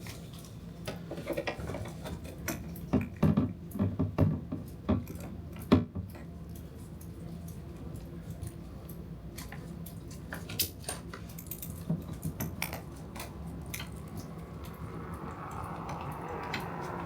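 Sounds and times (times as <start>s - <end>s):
steady low hum: 6.5s - 17.0s
metal tool clicks and clinks: 8.4s - 14.8s.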